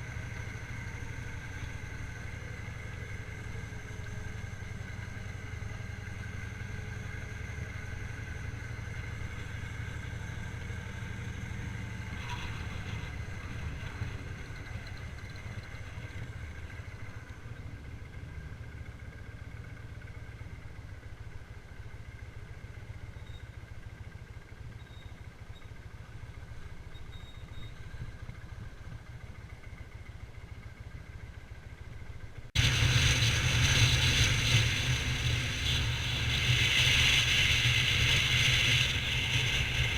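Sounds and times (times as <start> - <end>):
motorcycle engine rumble: 0.0 - 39.9
wind noise: 32.6 - 39.9.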